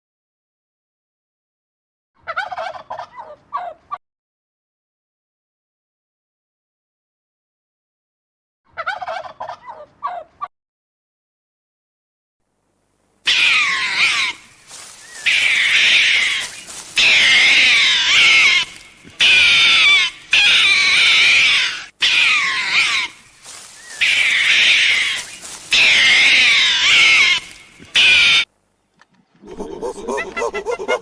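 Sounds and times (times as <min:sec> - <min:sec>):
animal high-pitched wavering calls: 0:13.3 - 0:28.5.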